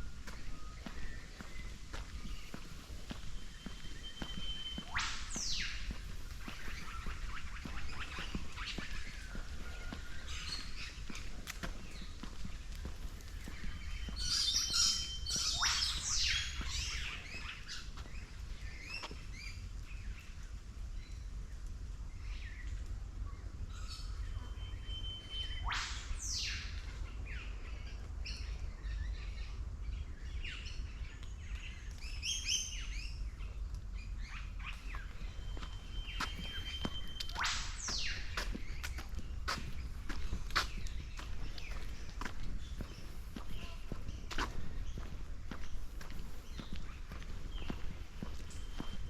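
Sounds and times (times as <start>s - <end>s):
birds chirping and whistling: 0.0s - 19.6s, 23.7s - 29.5s, 30.4s - 49.0s
loud sweeping bird call: 3.3s - 11.0s, 13.5s - 17.9s, 24.5s - 26.8s, 34.2s - 39.8s
short held bird whistle: 4.0s - 5.8s.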